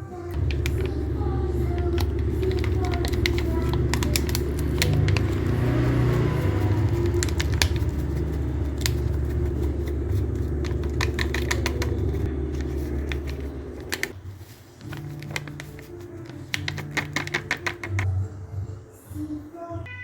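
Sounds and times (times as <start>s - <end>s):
beaters clicking against bowl: 0.3s - 14.1s, 15.2s - 18.1s
electric mixer motor humming: 0.3s - 14.1s.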